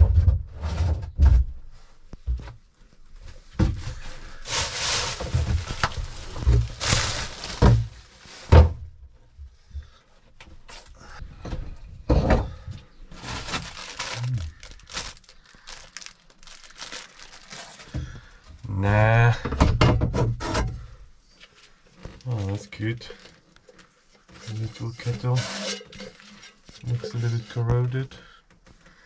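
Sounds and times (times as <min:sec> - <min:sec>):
objects thudding and knocking: 0:00.0 - 0:02.6, 0:03.2 - 0:10.0, 0:10.7 - 0:18.3, 0:19.2 - 0:20.9
rustling and scraping: 0:00.0 - 0:18.4, 0:19.7 - 0:28.1.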